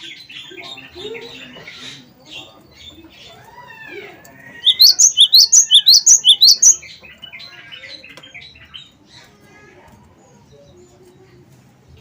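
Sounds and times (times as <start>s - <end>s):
bird singing sharp rising notes: 4.6s - 6.8s
bird twittering: 4.6s - 6.8s
bird gliding whistles: 4.7s - 6.8s.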